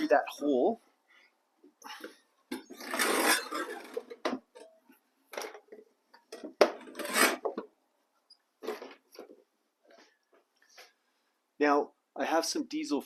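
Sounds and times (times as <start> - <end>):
hard parts scraping and clattering: 2.0 - 7.7.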